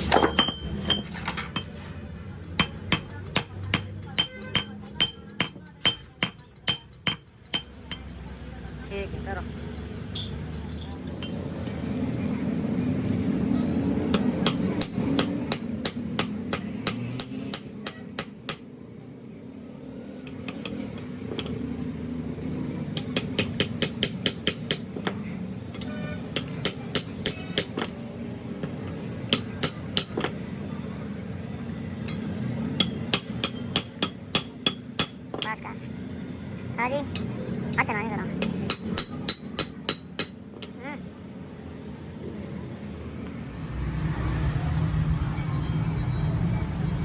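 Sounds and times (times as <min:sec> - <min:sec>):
hammer striking steel on anvil: 0:00.0 - 0:01.8, 0:02.6 - 0:08.2, 0:14.1 - 0:18.7, 0:23.0 - 0:25.2, 0:25.8 - 0:28.0, 0:28.6 - 0:30.4, 0:32.0 - 0:35.6, 0:38.4 - 0:40.8.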